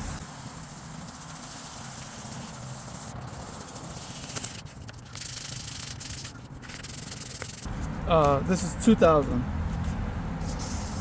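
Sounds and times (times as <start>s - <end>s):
sandpaper rubbing on plastic: 0.2s - 7.7s.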